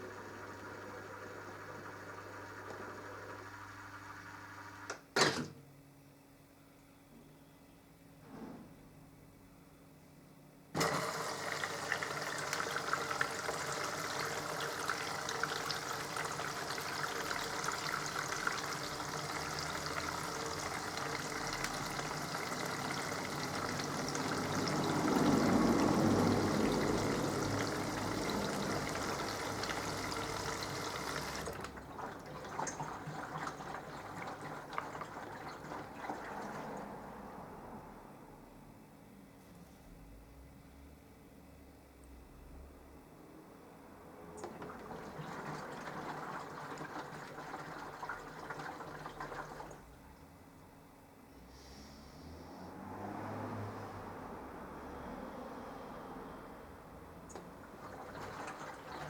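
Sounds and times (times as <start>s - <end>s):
water rushing in washing machine: 0.0s - 5.3s, 10.8s - 38.0s, 44.1s - 50.2s, 52.8s - 59.0s.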